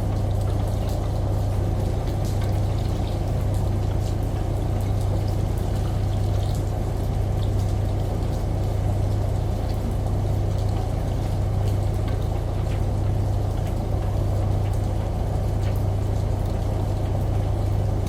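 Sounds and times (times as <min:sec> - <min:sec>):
washing machine hum: 0:00.0 - 0:18.0
water drips: 0:00.1 - 0:18.0.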